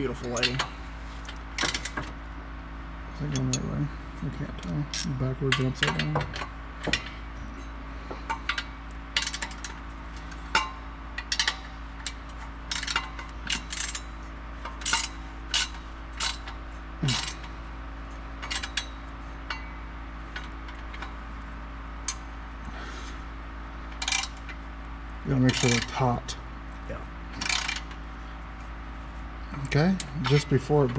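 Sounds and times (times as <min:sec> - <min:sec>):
steady low hum: 0:00.0 - 0:30.9
ratchet wrench clicking: 0:12.7 - 0:14.0, 0:14.8 - 0:17.5, 0:24.0 - 0:24.4, 0:25.5 - 0:25.9, 0:27.4 - 0:28.0.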